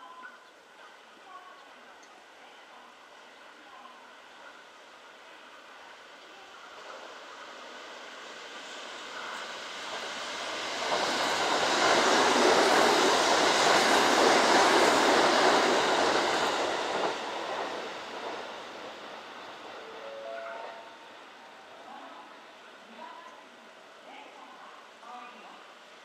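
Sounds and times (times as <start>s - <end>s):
electric train passing: 4.8s - 24.0s.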